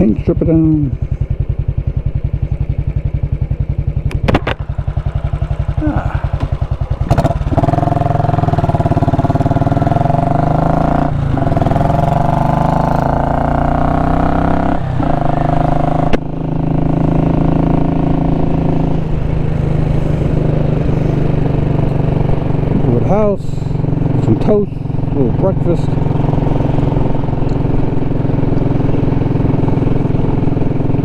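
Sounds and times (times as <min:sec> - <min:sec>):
motorcycle engine thudding: 0:00.0 - 0:17.0.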